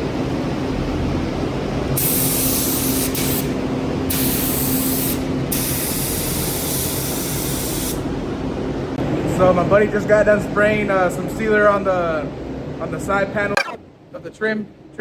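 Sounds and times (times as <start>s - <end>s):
steady low hum: 0.0s - 15.0s
paint spray gun hissing: 2.0s - 8.1s.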